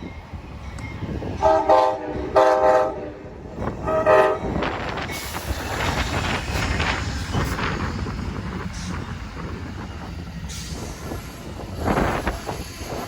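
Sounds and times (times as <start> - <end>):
train rumbling: 0.0 - 13.0
locomotive air horn blasts: 1.4 - 3.2, 3.8 - 4.5.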